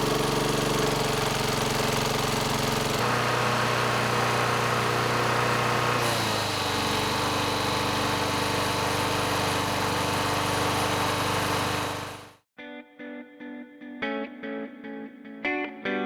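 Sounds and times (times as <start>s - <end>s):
lawn mower engine running: 0.0s - 12.4s.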